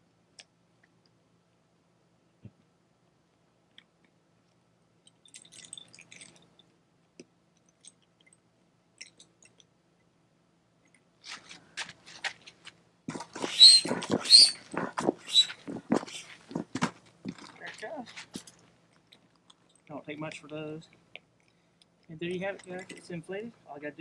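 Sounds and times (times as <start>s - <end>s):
air pump strokes: 13.1s - 17.4s.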